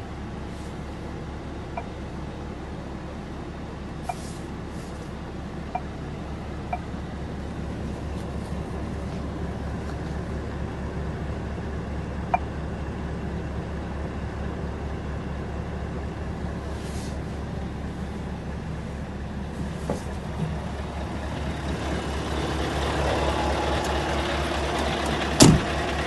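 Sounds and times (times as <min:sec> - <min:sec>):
truck diesel engine droning: 0:00.0 - 0:26.0.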